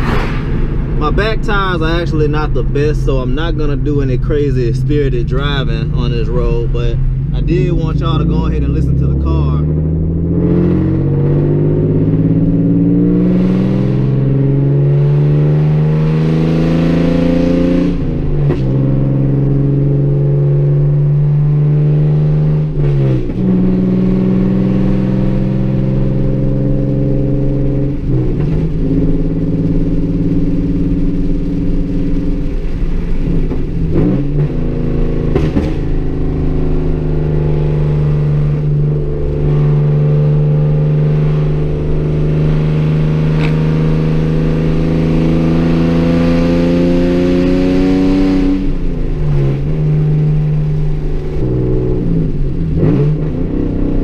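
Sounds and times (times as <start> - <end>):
deep loud engine note: 0.0 - 14.8
sharp click: 43.4 - 43.6.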